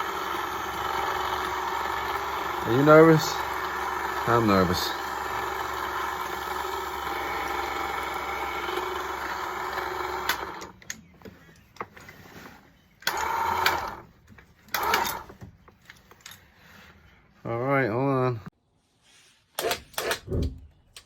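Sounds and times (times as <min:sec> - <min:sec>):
electric hoist motor running: 0:00.0 - 0:10.9, 0:13.0 - 0:14.1, 0:14.7 - 0:15.4.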